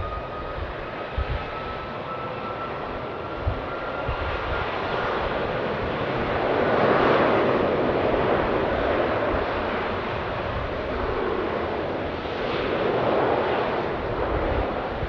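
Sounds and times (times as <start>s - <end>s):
faint high whine: 0.0s - 6.5s
jet engines roaring: 0.0s - 15.0s.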